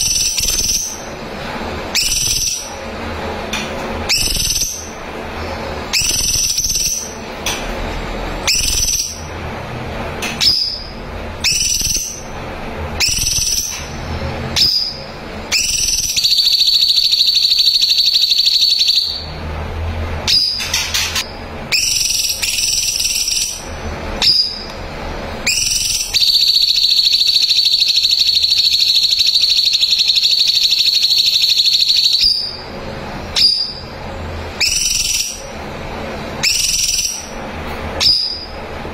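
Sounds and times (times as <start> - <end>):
bulbul whistled notes: 4.1 - 5.0, 5.9 - 7.2, 8.4 - 9.2, 14.6 - 19.3.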